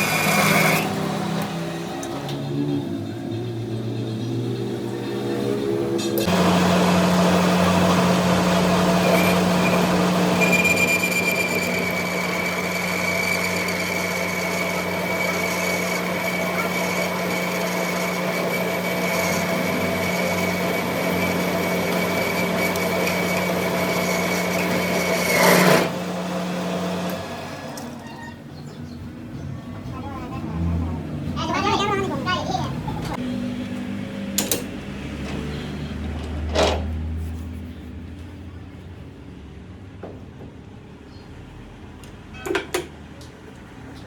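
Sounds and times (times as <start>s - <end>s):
power tool humming: 5.3s - 28.0s.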